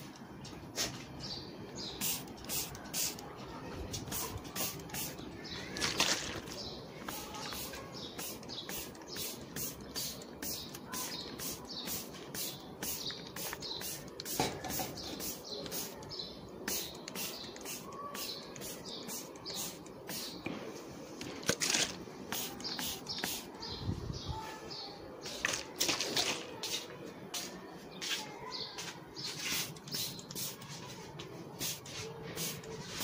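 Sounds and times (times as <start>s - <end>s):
small birds chirping: 0.0s - 33.0s
handling rustle: 5.6s - 7.8s, 21.2s - 23.3s, 25.3s - 26.9s.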